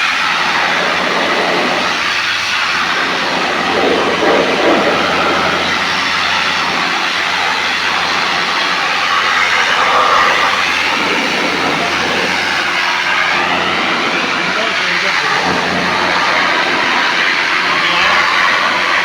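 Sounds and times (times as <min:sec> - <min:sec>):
low motor hum: 0:00.0 - 0:14.8
loud rushing noise: 0:00.0 - 0:19.0.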